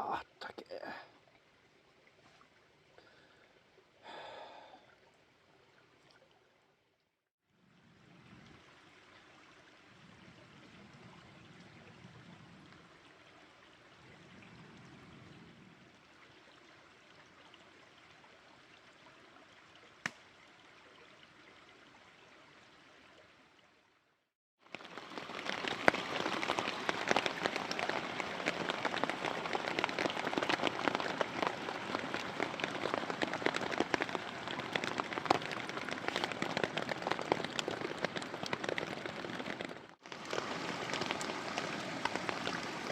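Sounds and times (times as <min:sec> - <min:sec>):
dense patter of crackles and taps: 0:20.0 - 0:20.3, 0:24.6 - 0:42.9
mountain stream rushing: 0:24.7 - 0:42.9.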